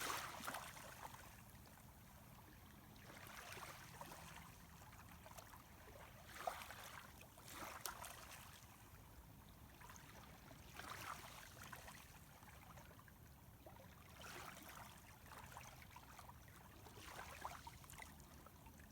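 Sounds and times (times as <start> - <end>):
sea water lapping at shore: 0.0 - 1.6.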